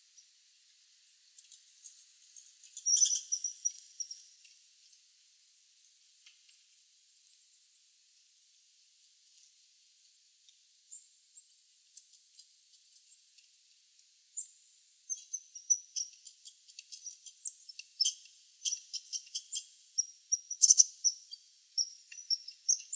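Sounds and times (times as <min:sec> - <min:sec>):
birds chirping: 0:02.7 - 0:04.4.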